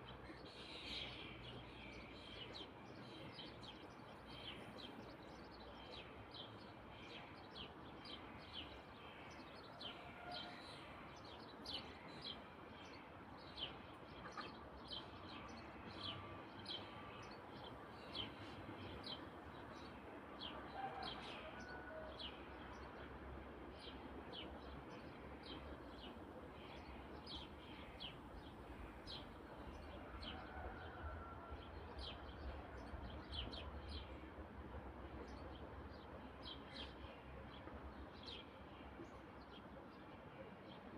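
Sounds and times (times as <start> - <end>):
faint steady background noise: 0.0 - 40.9.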